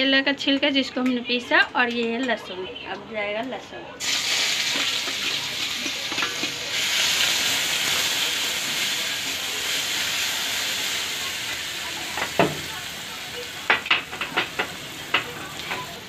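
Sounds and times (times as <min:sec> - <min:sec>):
garlic sizzling in hot oil: 0:04.0 - 0:16.0.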